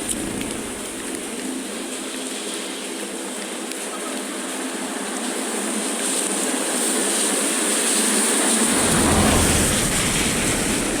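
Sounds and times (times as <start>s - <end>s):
water rushing into drain: 8.4s - 11.0s
low rumble: 8.5s - 11.0s.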